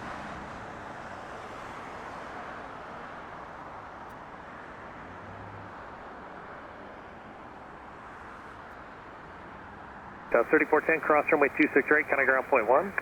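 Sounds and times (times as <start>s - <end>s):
distant jet airliner engines: 10.3s - 13.0s.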